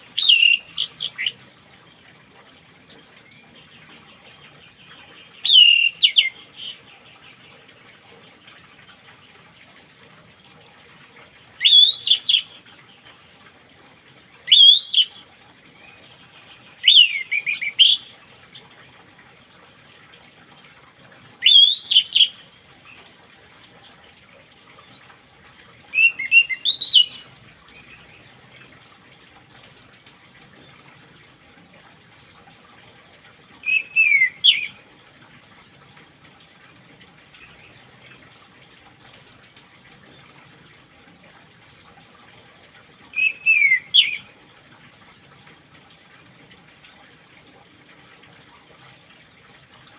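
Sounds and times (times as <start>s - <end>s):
thrush whistled song: 5.4s - 6.7s, 11.6s - 12.4s, 14.5s - 15.1s, 21.4s - 22.3s, 25.9s - 27.2s, 33.6s - 34.8s, 43.1s - 44.3s.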